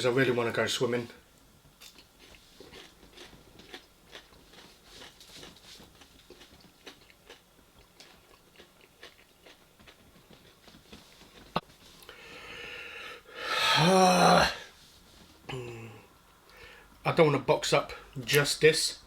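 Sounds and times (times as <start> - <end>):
person chewing food: 1.8 - 12.4.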